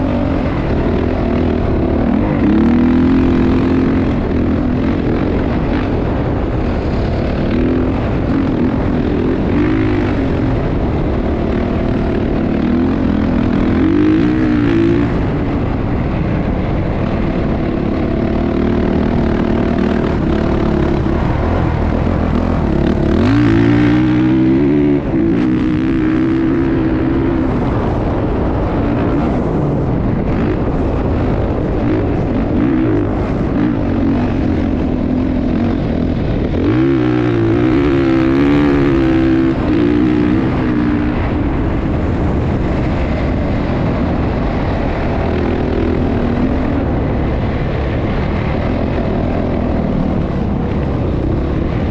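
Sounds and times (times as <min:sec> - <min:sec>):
motocross bike engines revving: 0:00.0 - 0:51.9.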